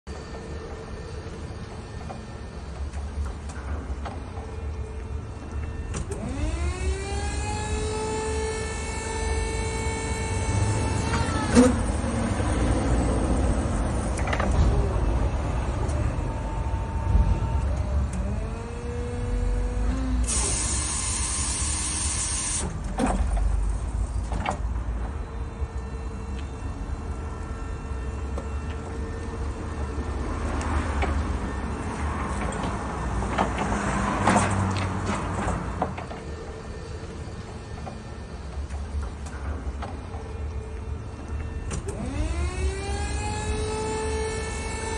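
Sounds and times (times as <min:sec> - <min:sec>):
forklift electric motor whining: 0:00.1 - 0:24.4, 0:25.0 - 0:44.9
low rumble: 0:12.7 - 0:19.8.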